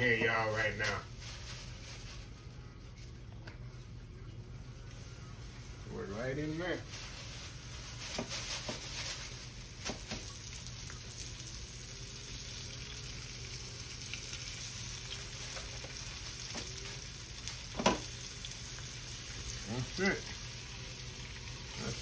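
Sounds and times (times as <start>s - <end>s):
oil crackling and popping: 7.9s - 22.0s
liver sizzling in oil: 8.7s - 22.0s.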